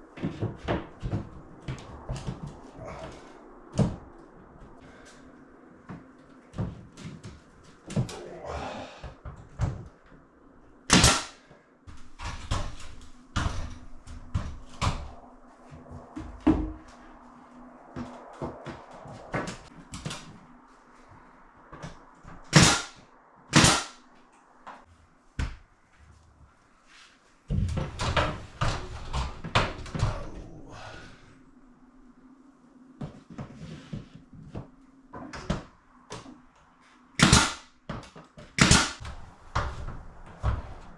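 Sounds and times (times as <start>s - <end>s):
faint steady hum: 0.0s - 40.9s
sharp loud cracks: 10.9s - 11.4s, 22.5s - 24.1s, 37.2s - 37.7s, 38.6s - 39.0s.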